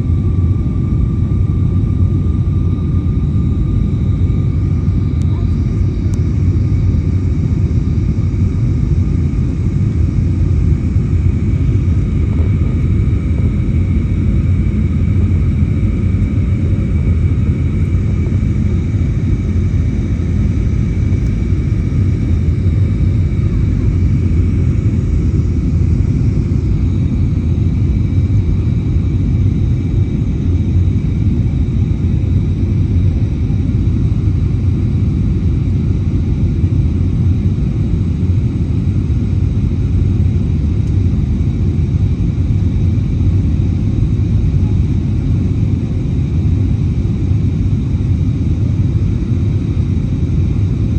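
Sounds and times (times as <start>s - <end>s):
aircraft cabin engine rumble: 0.0s - 50.9s.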